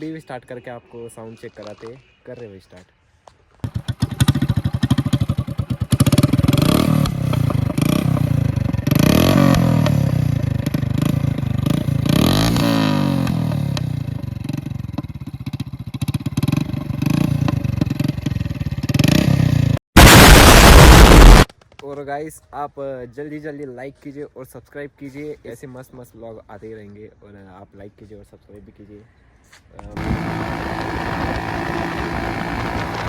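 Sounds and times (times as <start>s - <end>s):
motorcycle engine revving: 3.6s - 21.5s, 30.0s - 33.0s
loud burst of noise: 20.0s - 21.5s.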